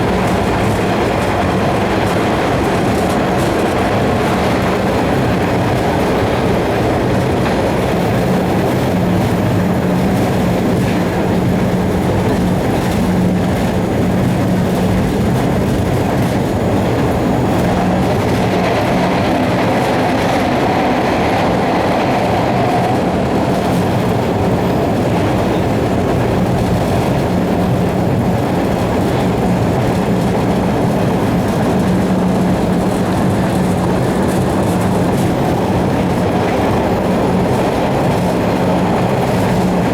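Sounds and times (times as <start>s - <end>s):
constant low hum: 0.0s - 39.9s
subway wheels rumbling on rail: 0.0s - 39.9s.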